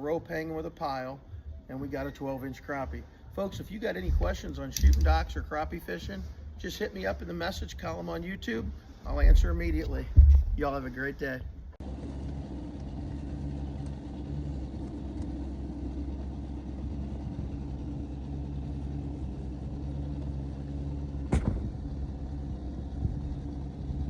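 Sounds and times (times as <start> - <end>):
boat motor humming: 0.0 - 24.0
sharp knock: 21.3 - 21.7.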